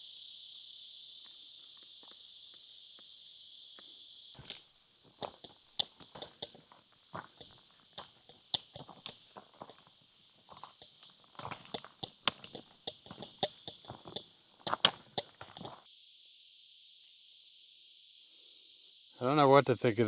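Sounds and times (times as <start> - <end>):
steady high hiss: 0.0 - 20.0
footsteps on rocky trail: 4.4 - 15.8.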